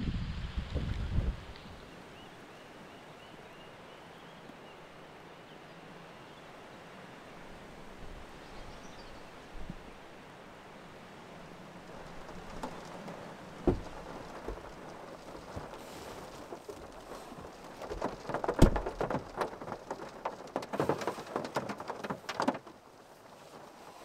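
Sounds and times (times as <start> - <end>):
rain pattering on a car roof: 10.6 - 24.0.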